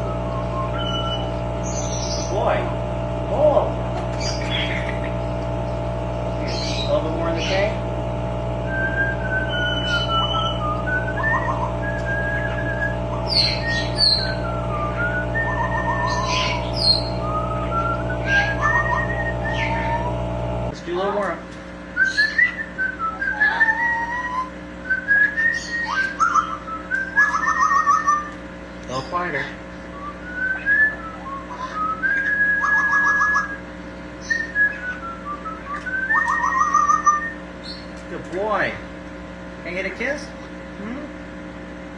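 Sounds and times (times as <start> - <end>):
parrot whistling a tune: 0.0 - 2.4, 8.7 - 20.1, 22.0 - 28.4, 29.9 - 37.9
parrot squawks: 0.8 - 2.4, 9.5 - 10.6, 11.2 - 17.2, 18.2 - 20.1, 22.0 - 24.5, 25.4 - 28.3, 30.5 - 33.6, 36.1 - 37.9.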